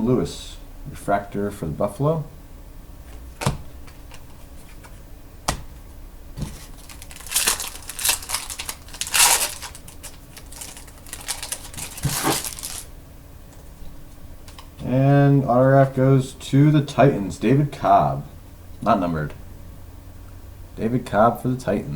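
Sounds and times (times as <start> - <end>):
card packaging crinkling and rustling: 6.4 - 12.9.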